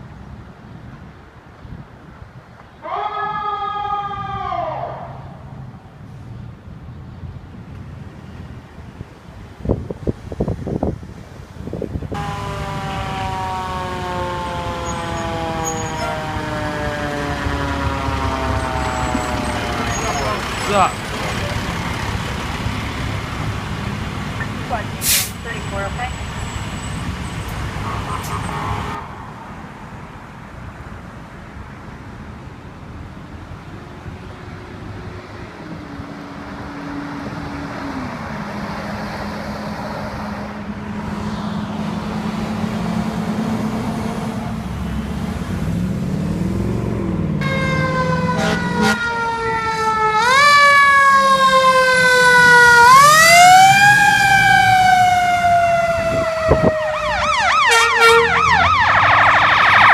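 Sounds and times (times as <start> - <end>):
fire truck rumble: 0.0 - 59.9
fire truck siren wailing: 12.1 - 29.3, 47.4 - 59.9.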